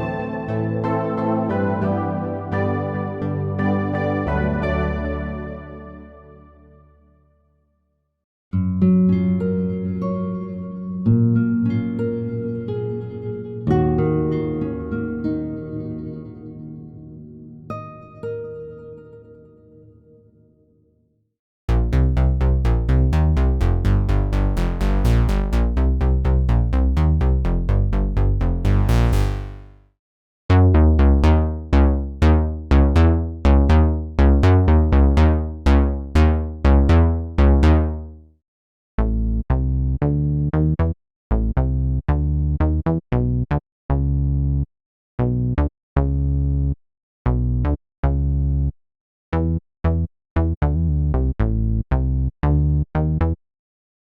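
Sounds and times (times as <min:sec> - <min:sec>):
synth bass lines: 0:00.0 - 0:06.8, 0:21.7 - 0:29.8, 0:30.5 - 0:38.1.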